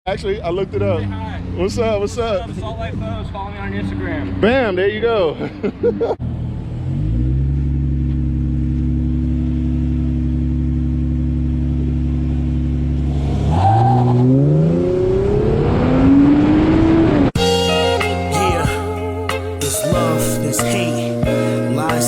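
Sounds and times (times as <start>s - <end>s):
car engine accelerating: 0.1s - 17.6s.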